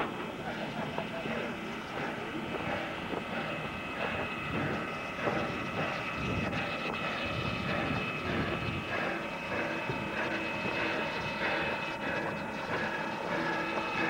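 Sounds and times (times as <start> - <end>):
thin high whine: 0.0 - 14.0
train mechanical noise: 0.0 - 14.0.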